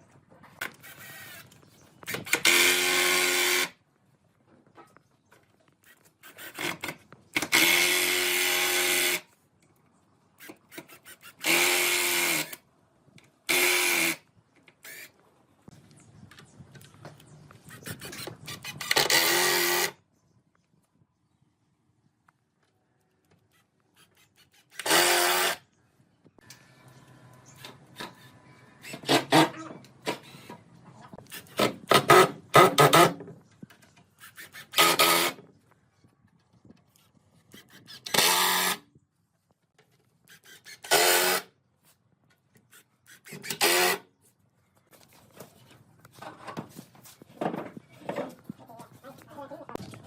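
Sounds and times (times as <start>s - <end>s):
light knocks and scrapes: 44.2s - 49.0s.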